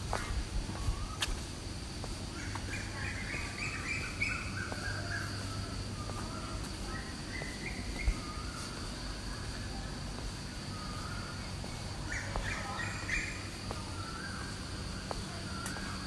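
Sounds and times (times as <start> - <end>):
small birds chirping: 0.0 - 16.0
steady high hum: 0.0 - 16.0.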